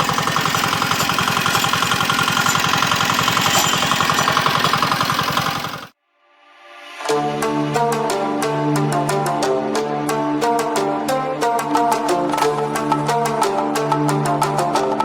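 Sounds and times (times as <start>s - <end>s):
diesel engine running: 0.0s - 5.9s.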